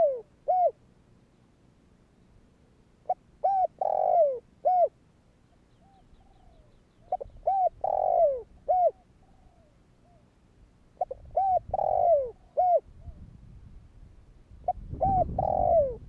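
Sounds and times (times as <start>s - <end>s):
dove cooing: 0.0s - 0.8s, 3.0s - 5.0s, 5.7s - 10.3s, 11.0s - 13.2s, 14.6s - 16.0s.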